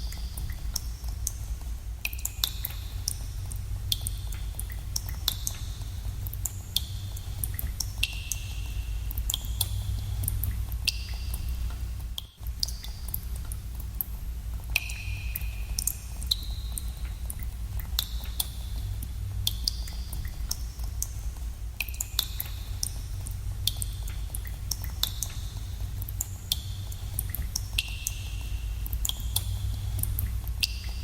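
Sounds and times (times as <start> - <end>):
steady low rumble: 2.7 - 31.0
water drops plinking into pool: 14.7 - 18.5.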